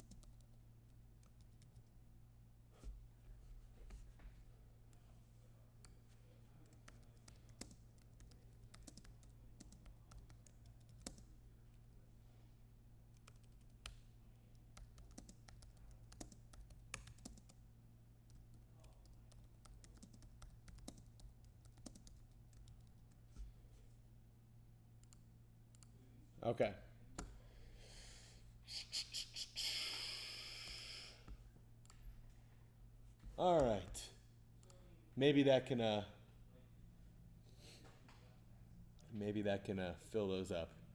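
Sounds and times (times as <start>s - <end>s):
low electrical hum: 0.0s - 40.9s
keyboard typing: 6.7s - 11.3s, 14.6s - 17.6s, 18.3s - 23.2s.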